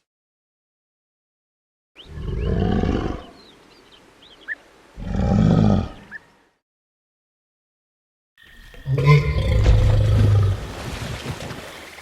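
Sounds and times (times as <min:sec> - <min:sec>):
dinosaur roar: 0:02.1 - 0:03.3.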